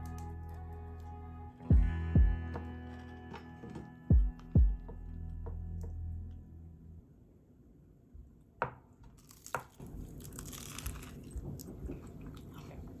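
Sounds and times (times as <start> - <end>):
background music: 0.0 - 6.9
crisp bread crunching: 9.2 - 13.0.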